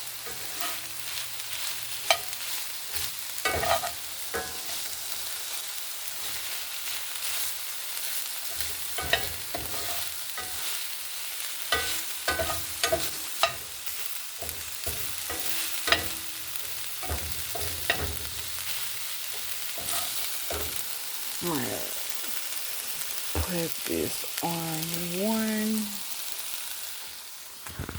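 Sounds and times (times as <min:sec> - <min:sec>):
chili sizzling in a pot: 0:00.0 - 0:27.9
utensil clinking against pot: 0:03.4 - 0:04.8, 0:08.6 - 0:10.6, 0:11.7 - 0:13.7, 0:14.4 - 0:20.8.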